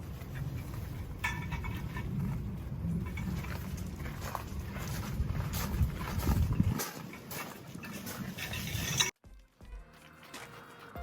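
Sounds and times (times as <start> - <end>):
noisy outdoor activity: 0.0 - 11.0
soft background music: 9.2 - 11.0.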